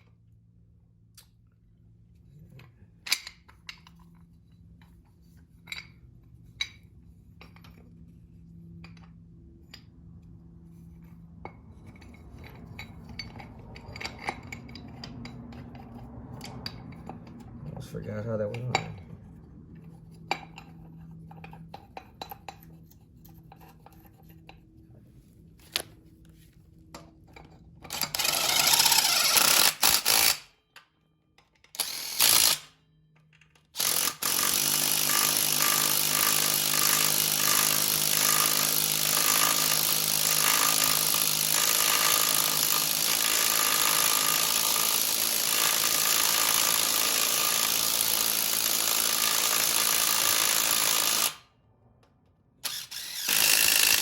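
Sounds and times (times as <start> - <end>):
power tool running: 27.9 - 30.4, 31.8 - 32.7, 33.8 - 51.4, 52.6 - 54.0.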